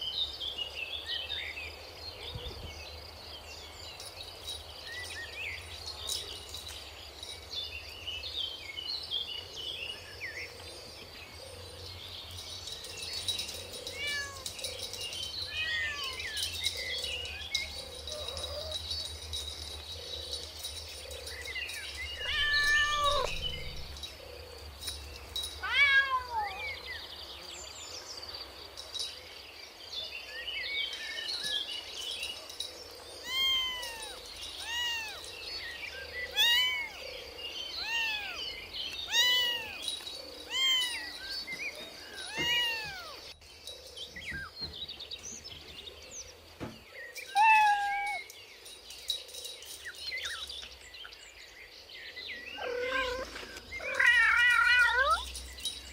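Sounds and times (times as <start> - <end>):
kittens mewing: 13.9 - 14.6, 22.2 - 23.9, 33.2 - 35.2, 37.8 - 38.4, 39.1 - 41.2, 42.2 - 43.2, 52.6 - 55.3.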